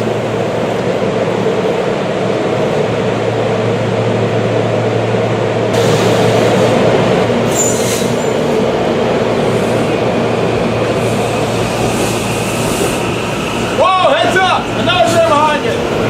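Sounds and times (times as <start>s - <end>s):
train rumble and hum: 0.0s - 16.0s
high-pitched squeal: 7.4s - 8.6s.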